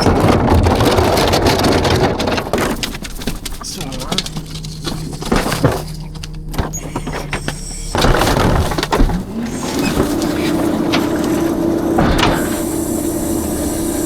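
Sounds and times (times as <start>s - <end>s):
hydraulic packer rushing: 0.0s - 14.0s
rubbish crashing into hopper: 0.0s - 14.0s
truck engine hum: 0.0s - 14.0s.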